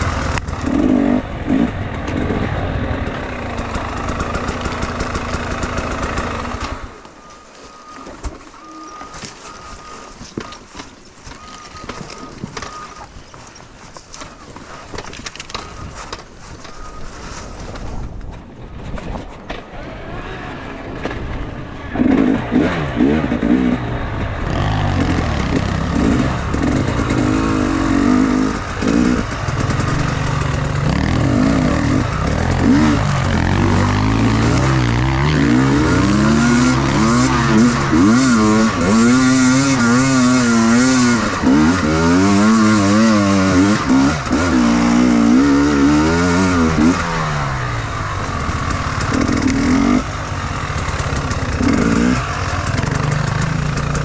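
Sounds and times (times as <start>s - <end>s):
motorcycle engine revving: 0.0s - 18.2s, 19.6s - 54.0s.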